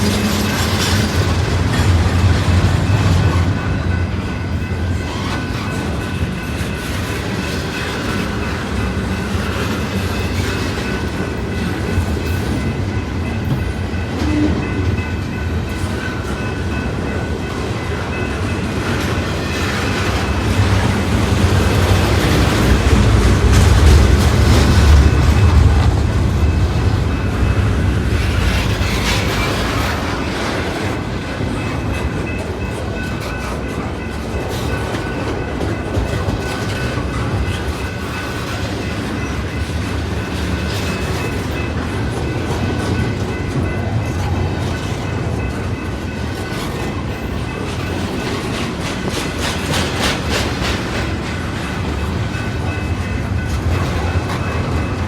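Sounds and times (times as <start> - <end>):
freight train rumbling past: 0.0 - 55.0
wheels clicking over rail joints: 18.1 - 55.0.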